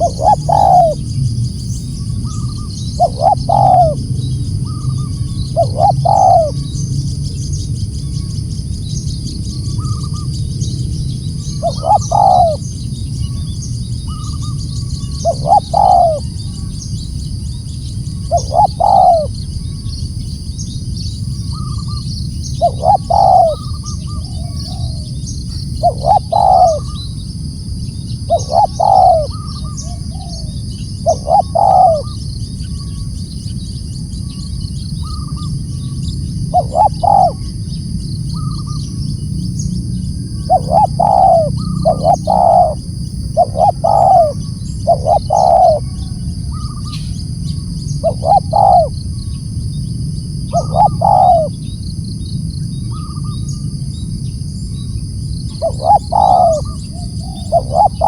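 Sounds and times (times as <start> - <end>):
dove cooing: 0.0 - 1.2, 2.2 - 6.8, 11.2 - 19.5, 21.4 - 27.2, 28.2 - 33.1, 35.0 - 37.6, 40.0 - 49.5, 50.4 - 51.7, 55.5 - 58.0.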